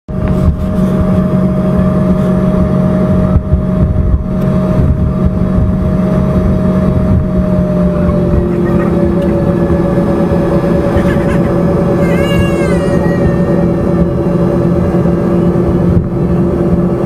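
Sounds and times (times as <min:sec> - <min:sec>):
constant engine whine: 0:00.1 - 0:17.0
jet cabin rumble and hum: 0:06.4 - 0:15.0.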